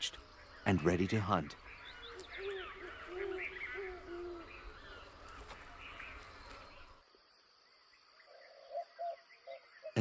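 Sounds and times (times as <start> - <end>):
higher chirping calls: 0.4 - 6.9.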